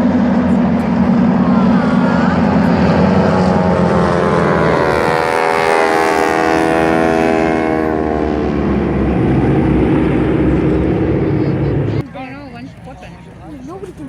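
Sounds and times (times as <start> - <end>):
propeller airplane flying past: 0.0 - 14.0.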